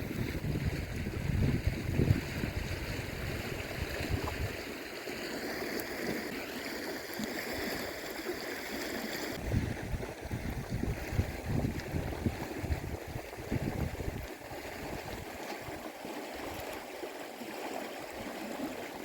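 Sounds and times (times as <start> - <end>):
wind buffeting microphone: 0.0 - 4.7, 9.4 - 15.8
river water flowing: 0.0 - 19.0.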